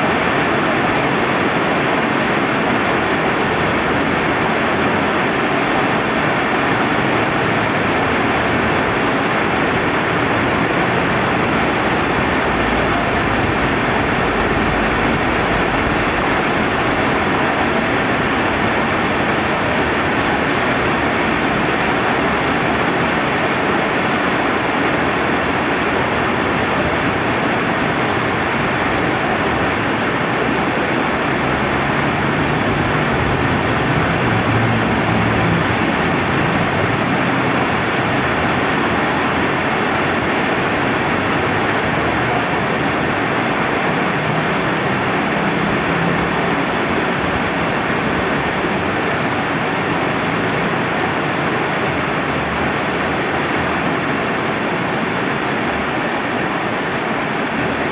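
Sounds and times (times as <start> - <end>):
river flowing: 0.0 - 57.9
steady rain: 0.0 - 57.9.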